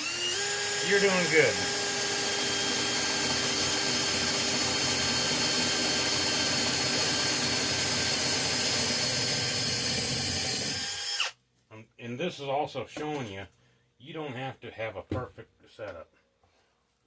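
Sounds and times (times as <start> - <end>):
electric drill boring metal: 0.0 - 11.3.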